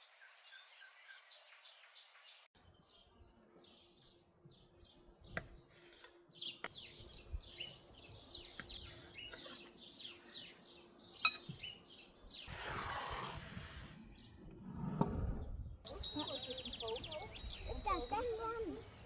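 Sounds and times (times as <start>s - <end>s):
songbirds chirping: 0.0s - 19.0s
rushing hissing noise: 12.4s - 14.1s.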